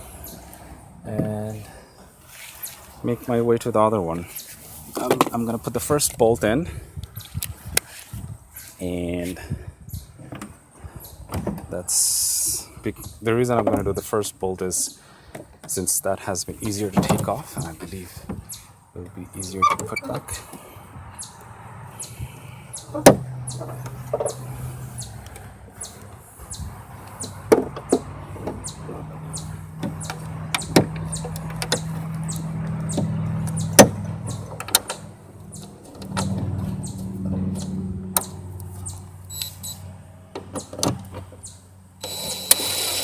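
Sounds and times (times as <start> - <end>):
power drill motor running: 42.0 - 43.0.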